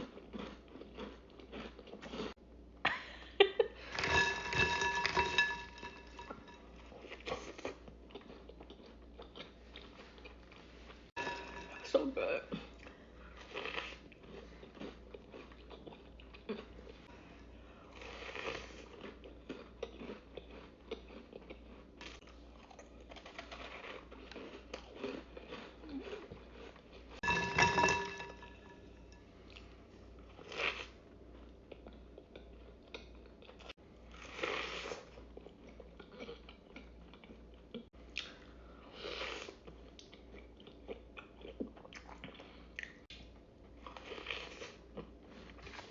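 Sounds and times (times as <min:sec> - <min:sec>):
person biting and chewing cookie: 0:00.0 - 0:02.4, 0:17.9 - 0:27.2, 0:43.9 - 0:45.9.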